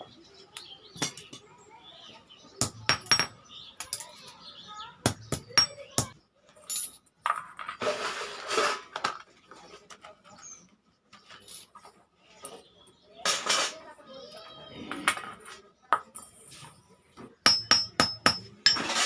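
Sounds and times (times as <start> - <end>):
metallic knocks and clinks: 2.6 - 4.2, 5.3 - 7.5, 17.4 - 19.0.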